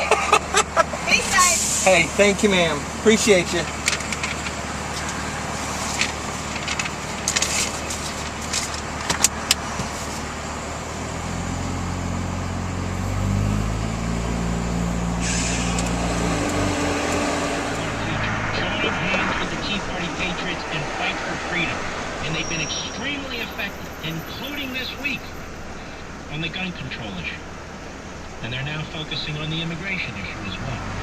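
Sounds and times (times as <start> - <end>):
truck engine accelerating: 0.0 - 31.0
clicks and rattles in cab: 3.5 - 5.2, 5.9 - 10.0.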